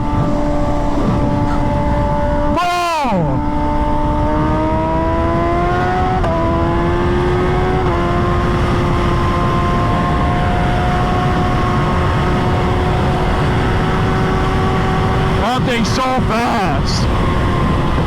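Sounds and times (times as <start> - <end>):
vehicle engine accelerating hard: 0.0 - 18.0
dense rushing noise: 15.4 - 17.1.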